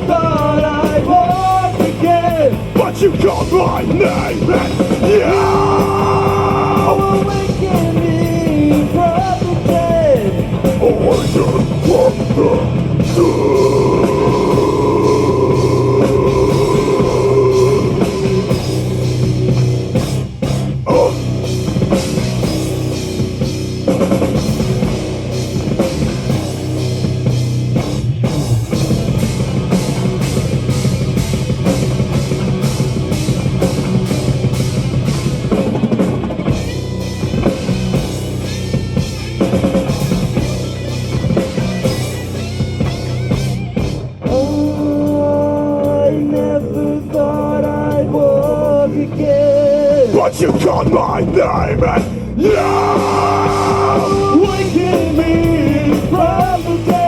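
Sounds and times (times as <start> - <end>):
metal band playing: 0.0 - 57.0.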